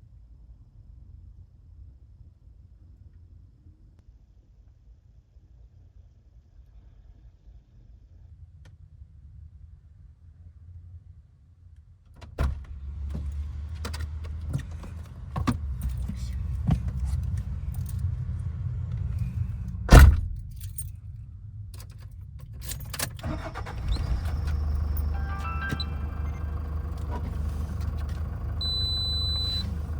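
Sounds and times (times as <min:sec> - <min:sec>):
loud thump: 0:19.9 - 0:20.3
keys jangling: 0:19.9 - 0:21.0, 0:21.8 - 0:23.2
van engine starting and idling: 0:22.8 - 0:29.9.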